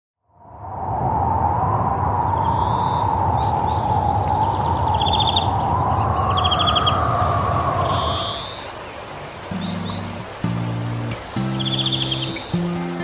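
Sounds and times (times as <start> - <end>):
birds calling with trills: 2.6 - 13.0.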